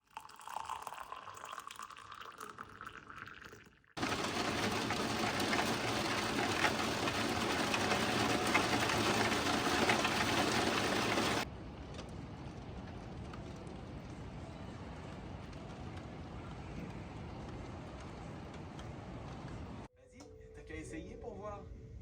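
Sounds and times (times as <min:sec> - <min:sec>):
heavy rain: 0:04.0 - 0:11.4.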